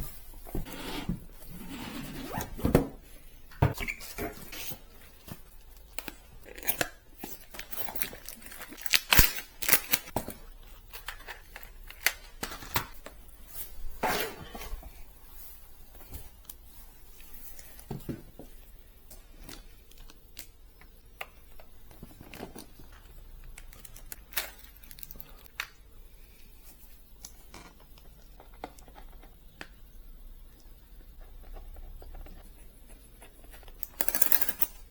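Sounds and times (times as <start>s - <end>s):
plastic and paper crinkling: 4.6s - 13.7s.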